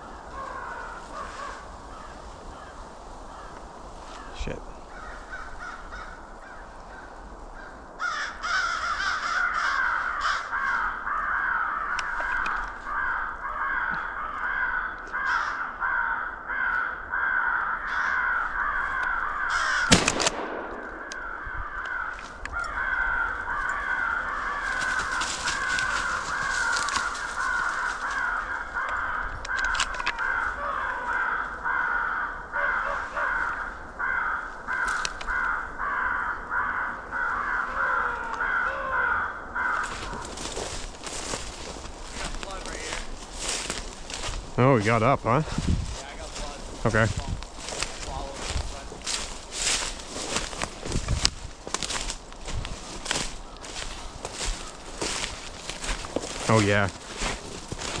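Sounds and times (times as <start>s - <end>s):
crows cawing: 0.0s - 58.0s
shotgun shot: 19.9s - 21.4s.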